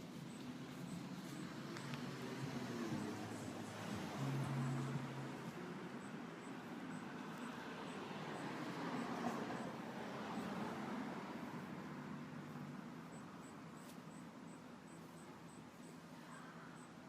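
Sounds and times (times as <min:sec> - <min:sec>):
vehicle passing: 0:00.0 - 0:13.9
faint high ticks: 0:00.2 - 0:10.8.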